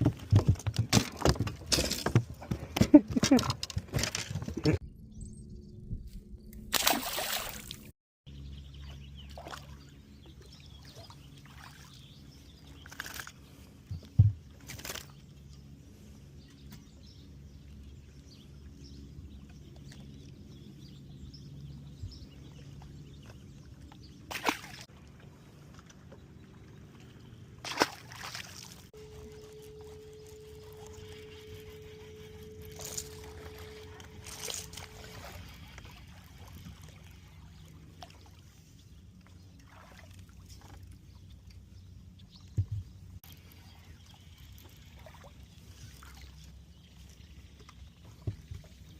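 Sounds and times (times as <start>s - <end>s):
steady low hum: 4.8s - 48.9s
water splashing against boat: 22.1s - 48.9s.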